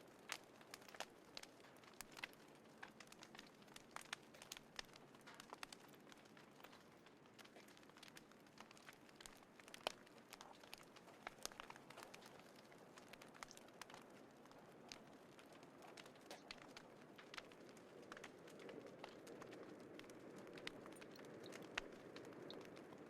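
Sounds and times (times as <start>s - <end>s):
small wood fire crackling: 0.0s - 23.0s.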